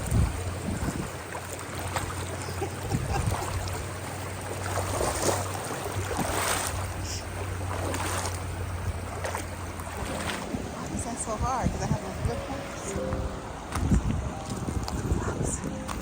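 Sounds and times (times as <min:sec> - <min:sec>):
water running over rocks: 0:00.0 - 0:16.0
wind buffeting microphone: 0:00.0 - 0:16.0.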